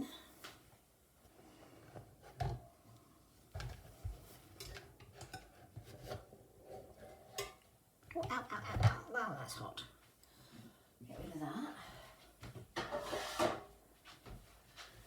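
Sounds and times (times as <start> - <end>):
utensil scraping metal cake tin: 12.8 - 13.7.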